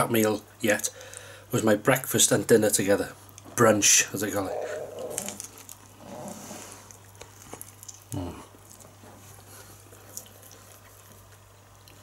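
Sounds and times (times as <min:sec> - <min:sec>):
closed-mouth murmur: 0:04.2 - 0:06.5
person chewing food: 0:04.5 - 0:06.0, 0:06.6 - 0:12.0.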